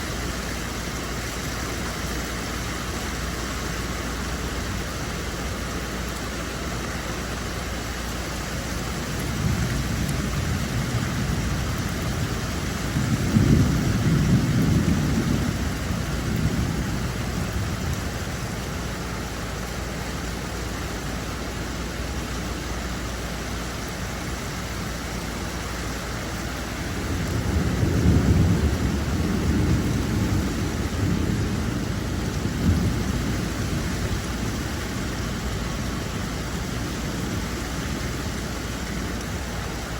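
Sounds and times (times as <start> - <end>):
steady rain falling: 0.0 - 39.9
low rolls of thunder: 8.9 - 19.4, 26.7 - 39.9.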